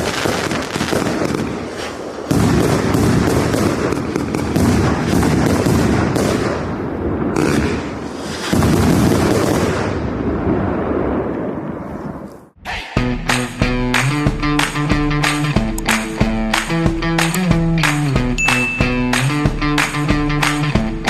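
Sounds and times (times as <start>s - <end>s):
fireworks barrage of bangs: 0.0s - 12.2s.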